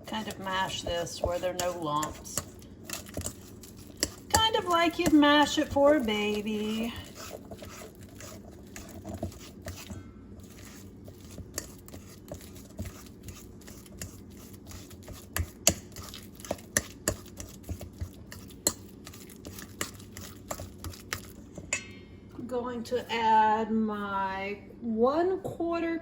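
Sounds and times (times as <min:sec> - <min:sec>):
fork mashing bananas: 0:00.0 - 0:21.8
fork tapping against bowl: 0:04.0 - 0:05.3, 0:15.1 - 0:22.0.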